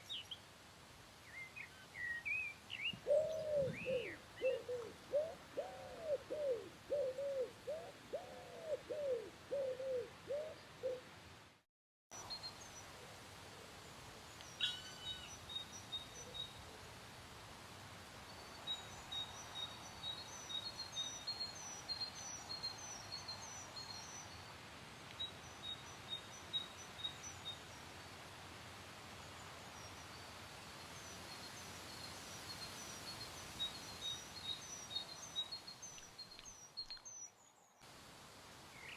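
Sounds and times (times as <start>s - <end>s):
steady outdoor hiss: 0.0s - 38.9s
dove cooing: 3.0s - 11.0s
small birds chirping: 32.5s - 37.8s.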